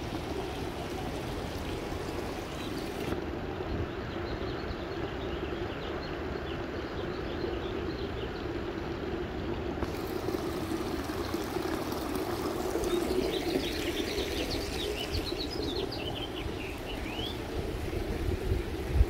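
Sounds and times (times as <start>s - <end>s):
small birds chirping: 12.7s - 17.7s.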